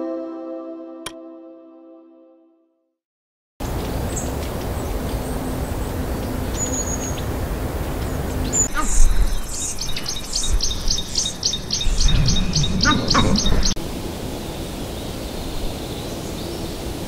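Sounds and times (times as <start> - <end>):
songbird calling repeatedly: 3.7 - 13.8
faint high bird chirps: 8.0 - 13.8
steady rushing noise: 10.0 - 17.0
low rumble: 11.6 - 13.8.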